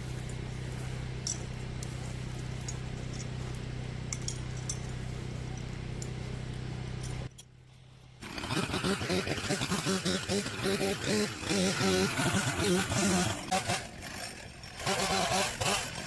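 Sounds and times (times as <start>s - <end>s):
low engine hum: 0.0s - 14.0s
faint clinks and ticks: 0.1s - 7.5s.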